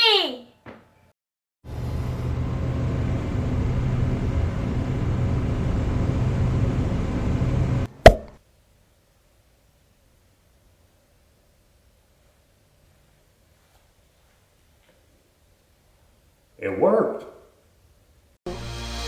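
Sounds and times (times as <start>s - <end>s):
sharp loud pop: 8.0s - 8.4s.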